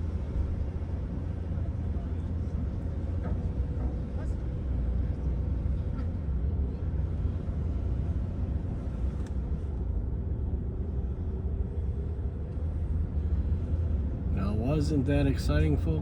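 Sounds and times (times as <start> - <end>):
car engine and tyres rumbling: 0.0 - 16.0
faint click: 9.2 - 9.4.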